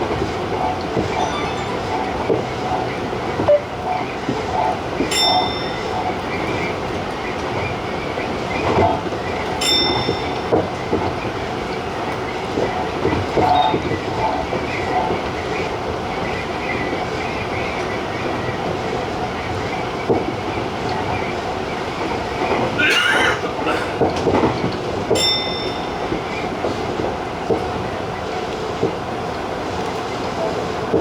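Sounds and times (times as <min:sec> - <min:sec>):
train wheels rumbling on rail: 0:00.0 - 0:31.0
high-pitched rings: 0:01.1 - 0:02.4.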